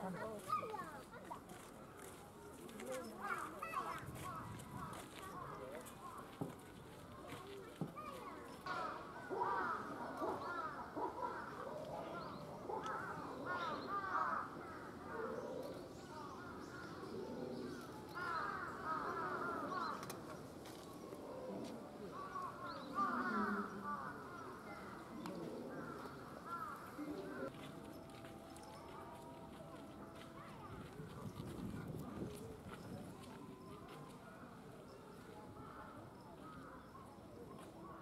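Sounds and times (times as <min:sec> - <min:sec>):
birds calling: 0:22.1 - 0:27.5.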